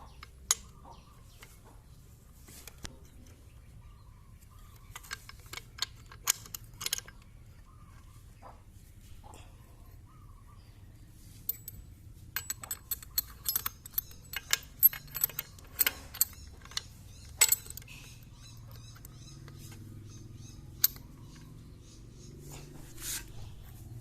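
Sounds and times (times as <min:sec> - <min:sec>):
metal tools clinking: 0:04.6 - 0:07.3, 0:11.5 - 0:21.6.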